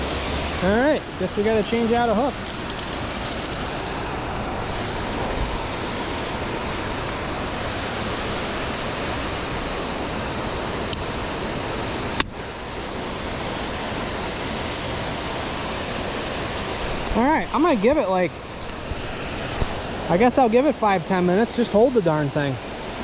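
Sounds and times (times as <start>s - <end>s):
water pouring over waterfall: 0.0s - 3.8s.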